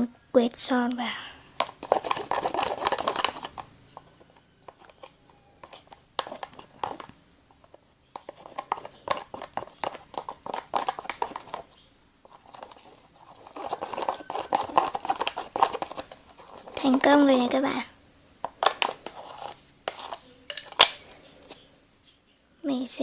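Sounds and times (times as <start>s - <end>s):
utensil tapping container sides: 8.2s - 11.7s.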